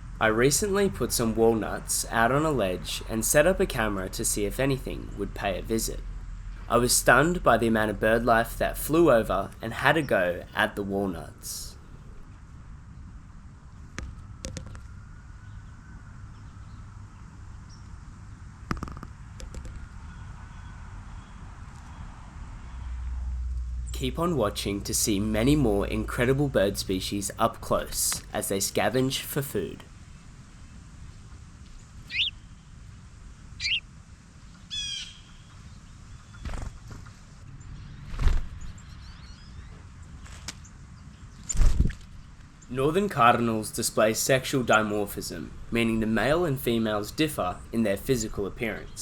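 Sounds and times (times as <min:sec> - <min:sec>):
low outdoor rumble: 0:00.0 - 0:49.0
faint bird chirp: 0:03.3 - 0:18.5, 0:30.6 - 0:42.8
wild birds calling: 0:31.7 - 0:32.8, 0:33.5 - 0:37.4.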